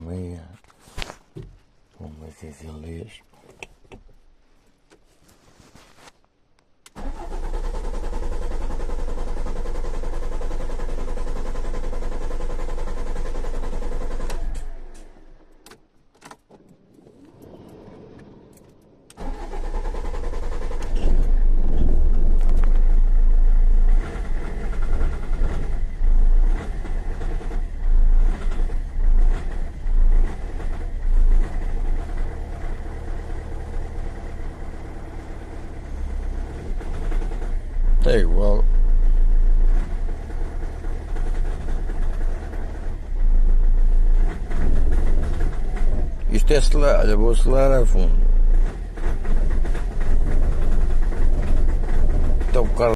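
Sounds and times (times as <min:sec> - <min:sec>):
diesel engine starting: 0:06.8 - 0:15.5, 0:16.6 - 0:52.9
car engine rough idling: 0:07.0 - 0:15.4, 0:19.2 - 0:52.9.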